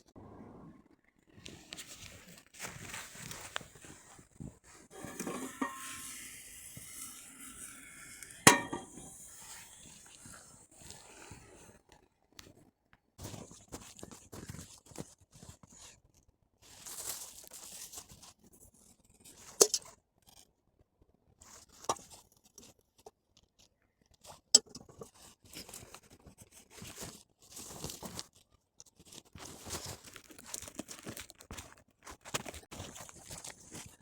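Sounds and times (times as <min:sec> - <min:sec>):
crunching and rustling: 0:25.6 - 0:34.0.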